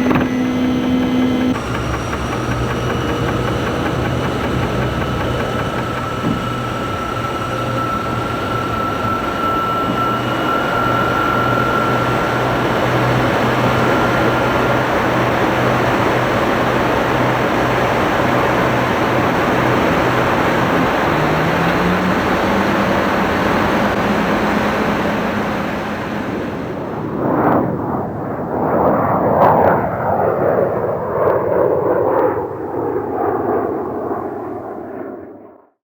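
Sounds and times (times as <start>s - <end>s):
jet engines flying past: 0.0s - 35.7s.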